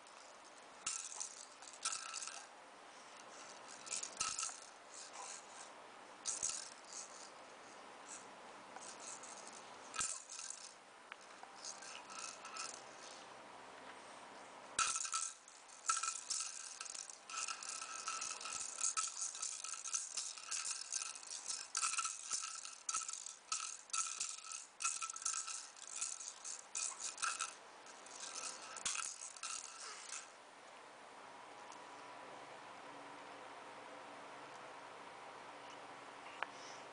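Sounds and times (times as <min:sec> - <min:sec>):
rattle shaking: 0:00.0 - 0:02.5, 0:03.2 - 0:08.2, 0:08.8 - 0:13.2, 0:14.8 - 0:30.3.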